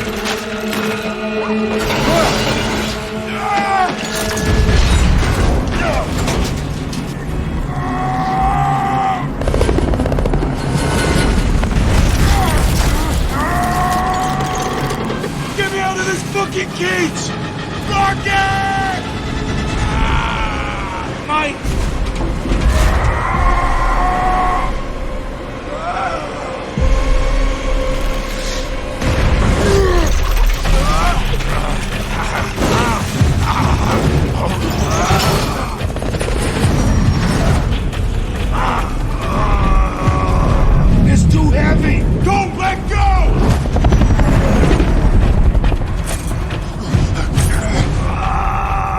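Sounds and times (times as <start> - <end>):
metal grinding and screeching: 0.0 - 8.2, 10.4 - 39.4
booming impacts: 1.7 - 8.1, 9.2 - 16.4, 19.0 - 25.7, 26.7 - 48.9
low rumble: 18.9 - 48.7.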